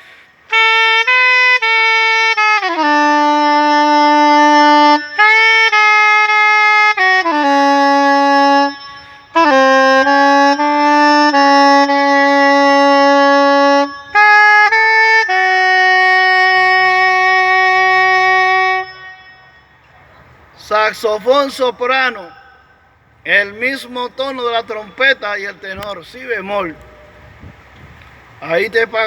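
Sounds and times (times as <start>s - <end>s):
soprano saxophone melody: 0.4s - 19.8s.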